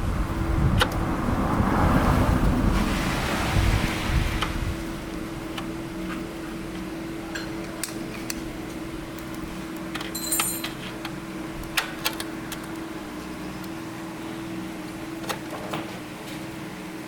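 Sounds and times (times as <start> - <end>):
metallic jingle: 10.1 - 10.8.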